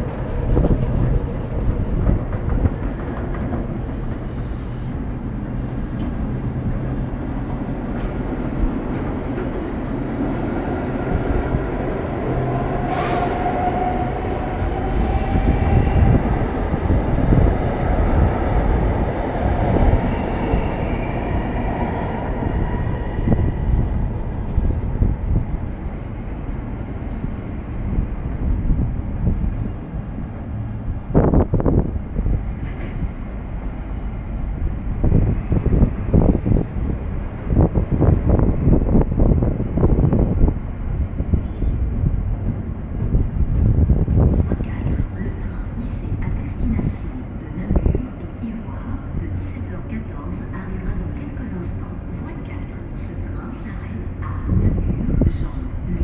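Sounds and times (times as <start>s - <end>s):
clacks over rail joints: 0.0s - 4.6s, 32.6s - 33.7s
train wheels rumbling on rail: 0.0s - 56.0s.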